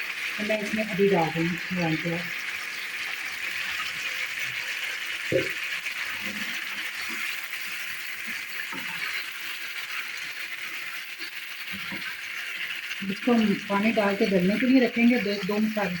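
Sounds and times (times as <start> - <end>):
meat sizzling in a pot: 0.0 - 16.0.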